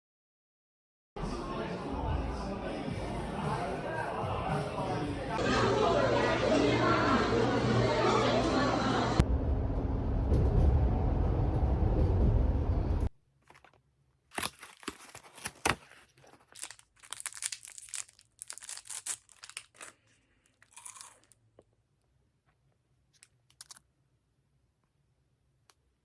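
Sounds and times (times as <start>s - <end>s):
packaging crinkling and tearing: 13.4s - 21.4s.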